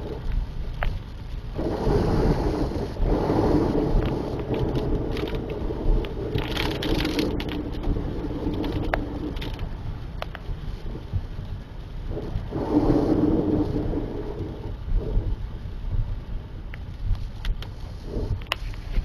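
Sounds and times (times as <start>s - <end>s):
road and tyre noise: 0.0s - 19.0s
sharp ticks and crackles of rain: 0.0s - 19.0s.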